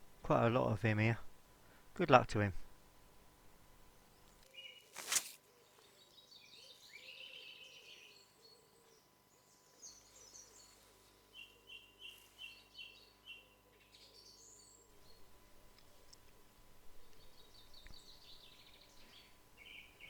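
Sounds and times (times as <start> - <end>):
birds singing and calling: 17.0 - 20.0.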